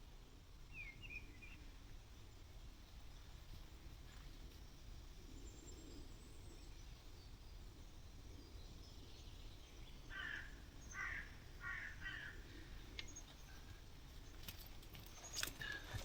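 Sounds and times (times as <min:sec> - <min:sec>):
faint outdoor background: 0:00.0 - 0:16.0
bird harsh calls: 0:10.0 - 0:13.9, 0:15.1 - 0:16.0.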